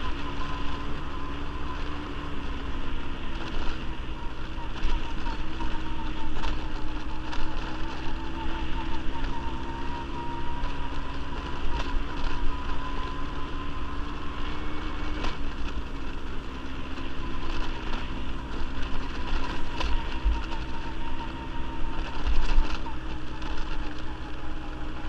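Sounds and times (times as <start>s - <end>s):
quad bike engine running: 0.0s - 25.0s.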